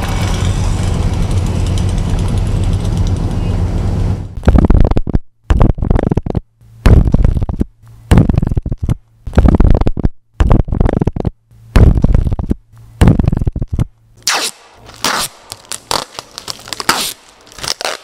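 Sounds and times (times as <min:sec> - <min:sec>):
short low rattling bursts: 0:00.0 - 0:06.2.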